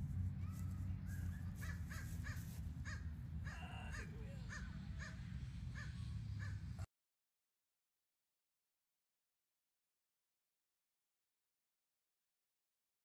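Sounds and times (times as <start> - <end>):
steady low rumble: 0.0 - 6.9
bird calling: 0.4 - 6.6.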